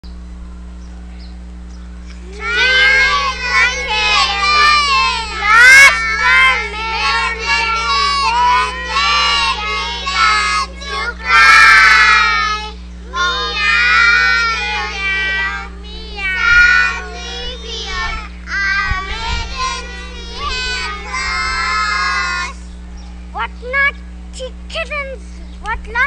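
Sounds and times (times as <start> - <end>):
low electrical hum: 0.0 - 26.0
young child singing: 2.3 - 22.6.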